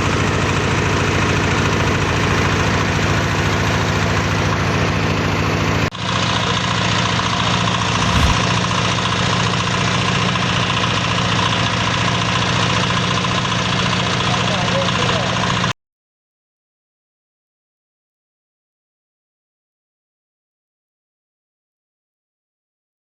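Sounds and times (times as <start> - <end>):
machine mechanical drone: 7.8 - 8.5.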